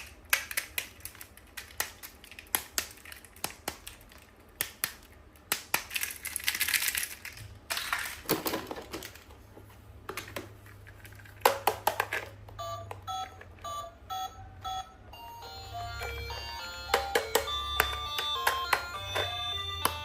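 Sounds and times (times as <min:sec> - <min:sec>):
electronic toy beeps: 0:12.6 - 0:20.0
electronic toy tune: 0:12.6 - 0:20.0.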